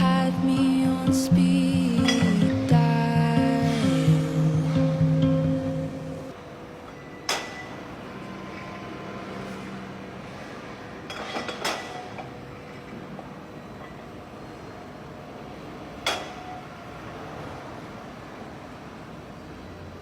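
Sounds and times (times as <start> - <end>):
background music: 0.0 - 6.3
steady low hum: 0.0 - 6.8.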